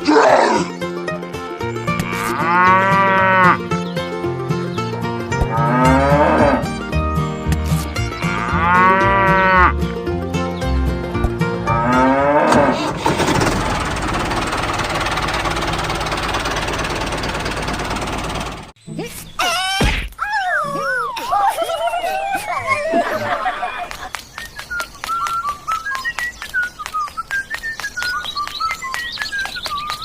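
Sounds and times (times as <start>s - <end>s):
background music with bass line: 0.7s - 12.8s
cow mooing: 2.0s - 3.6s, 5.5s - 6.7s, 8.2s - 9.8s, 11.7s - 12.9s.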